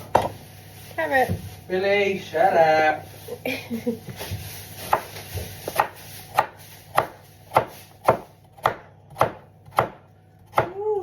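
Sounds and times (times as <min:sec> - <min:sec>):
knife chopping vegetables: 0:00.0 - 0:00.4, 0:04.1 - 0:11.0.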